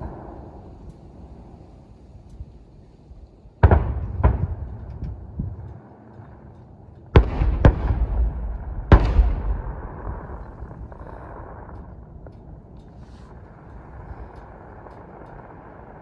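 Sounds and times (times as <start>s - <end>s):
fireworks shells booming: 3.3s - 16.0s.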